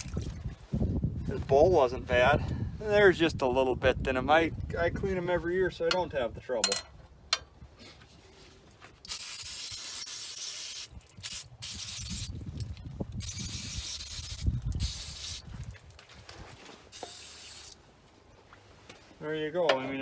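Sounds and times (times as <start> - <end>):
pressurized spray hissing: 9.1 - 12.3, 13.2 - 15.4, 17.0 - 17.8.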